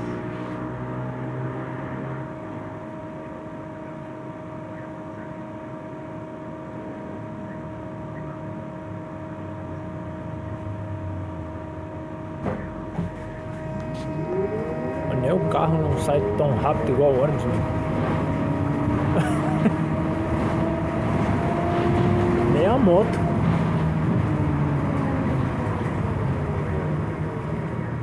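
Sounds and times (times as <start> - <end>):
trolleybus rumbling: 0.0 - 28.0
high electric hum: 4.2 - 27.2.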